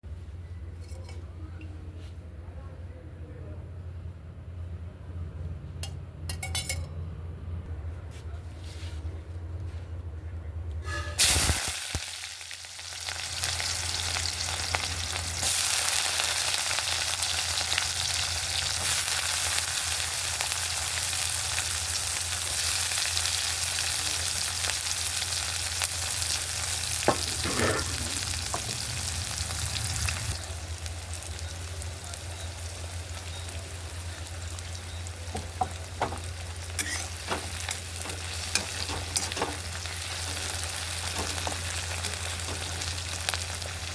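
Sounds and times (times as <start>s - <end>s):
spoon scraping a pan: 10.8s - 11.6s, 27.0s - 29.1s, 35.3s - 43.0s
food sizzling in hot oil: 10.8s - 43.9s.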